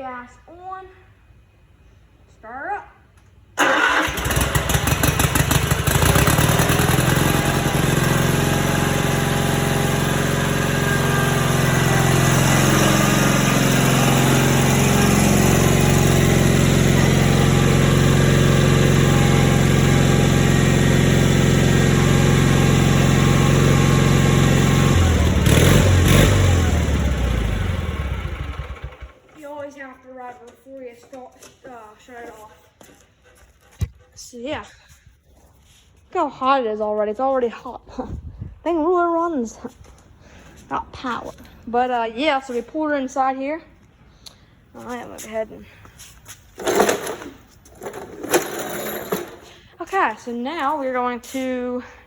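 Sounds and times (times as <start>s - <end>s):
garden tractor engine starting: 3.6s - 29.4s, 46.5s - 52.0s.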